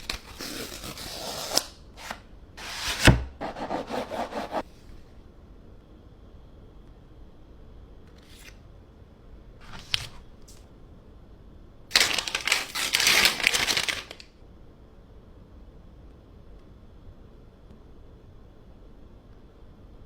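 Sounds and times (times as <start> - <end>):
packaging rustling and scraping: 0.0 - 3.3, 11.9 - 14.2.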